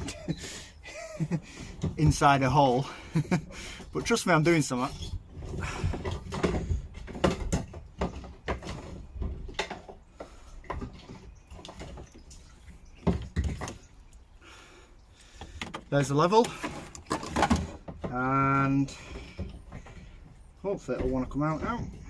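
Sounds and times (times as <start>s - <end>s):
fuel pump parts clicking and rattling: 0.0s - 22.0s.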